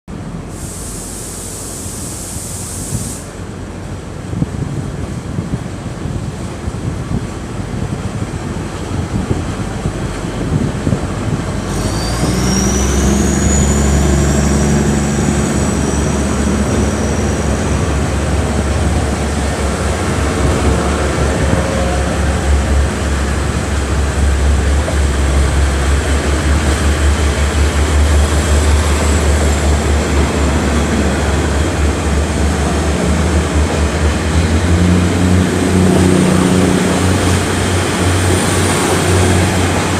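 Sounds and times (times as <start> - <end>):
diesel train engine drone: 0.1 - 39.9
high whine rising in pitch: 11.6 - 24.6.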